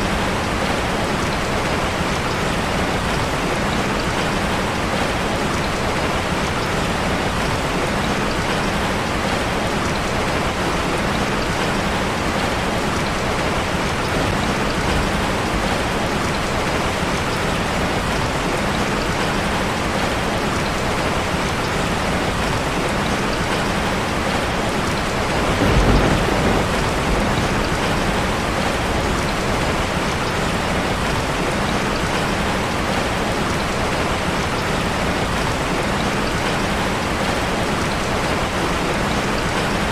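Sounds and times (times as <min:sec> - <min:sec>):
rain drumming on a metal roof: 0:00.0 - 0:39.9
low rumble of thunder: 0:25.0 - 0:30.2.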